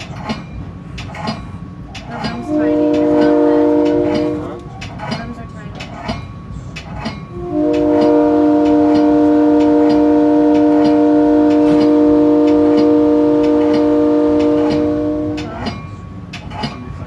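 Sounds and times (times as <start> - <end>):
train horn blast: 2.2 - 4.7, 7.3 - 15.9.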